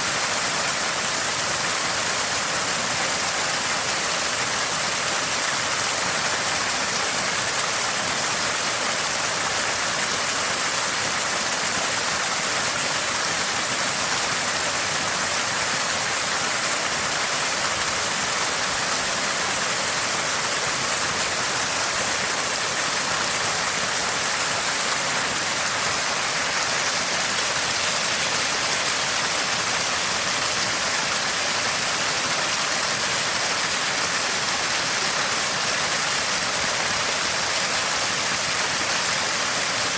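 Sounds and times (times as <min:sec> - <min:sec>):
spring water gushing and gurgling: 0:00.0 - 0:39.9.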